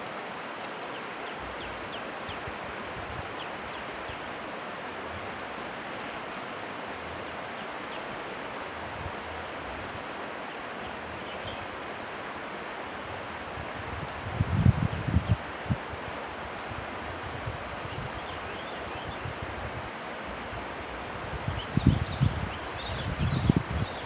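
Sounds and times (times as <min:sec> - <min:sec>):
steady rushing hiss: 0:00.0 - 0:03.0.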